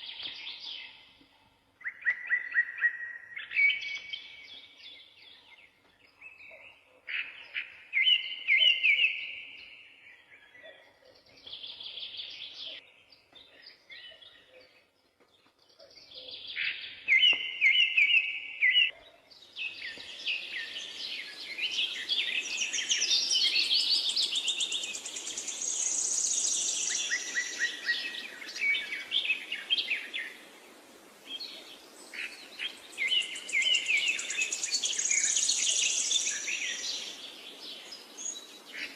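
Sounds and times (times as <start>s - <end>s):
songbirds singing: 0.0s - 38.9s
faint background hiss: 11.4s - 38.9s.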